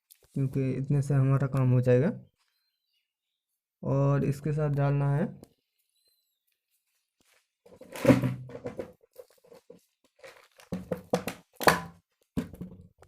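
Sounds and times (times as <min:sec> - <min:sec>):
packaging crinkling and rustling: 0:08.7 - 0:12.3.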